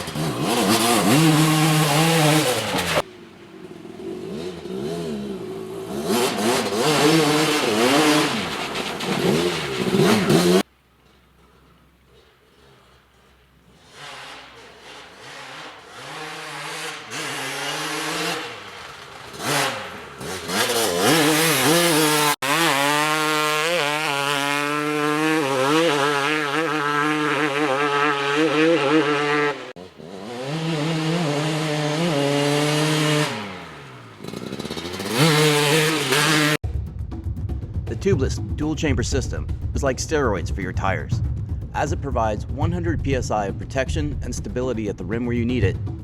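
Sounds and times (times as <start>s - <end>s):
two-stroke engine revving: 0.0s - 10.7s, 13.6s - 36.6s.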